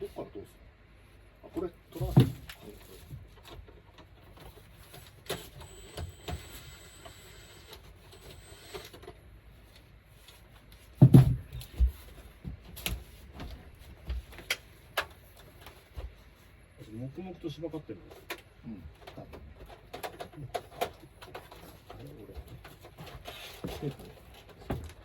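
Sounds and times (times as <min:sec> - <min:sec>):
clicks and knocks of parts and tools: 0:18.1 - 0:25.0.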